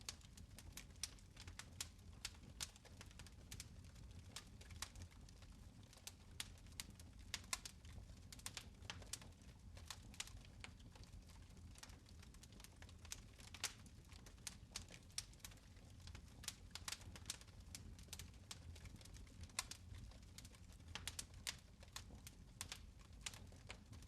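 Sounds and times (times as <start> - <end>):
fire crackling: 0.0 - 24.0
low fire rumble: 0.0 - 24.0.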